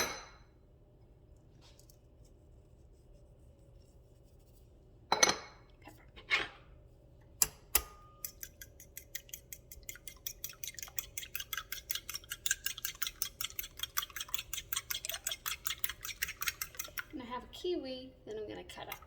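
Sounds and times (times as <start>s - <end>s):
fork beating eggs in a bowl: 7.4s - 17.5s, 18.5s - 19.0s.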